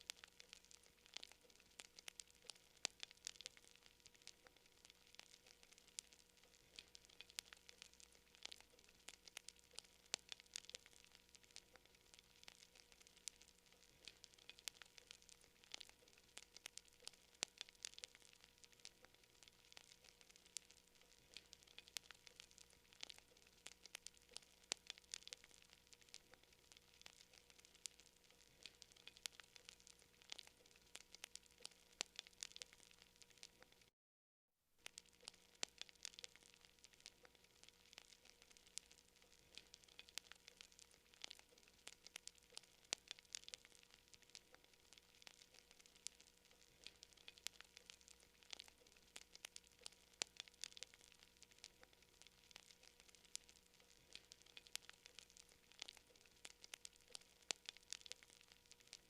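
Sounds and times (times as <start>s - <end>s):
campfire crackling: 0.0s - 33.9s, 34.8s - 59.0s
faint hiss: 0.0s - 33.9s.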